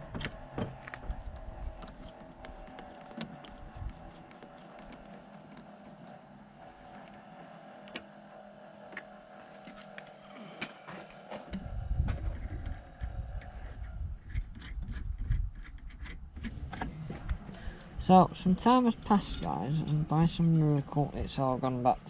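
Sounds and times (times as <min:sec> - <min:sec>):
low rumble: 0:11.6 - 0:15.6
clicks and rubbing on metal parts: 0:12.4 - 0:16.9.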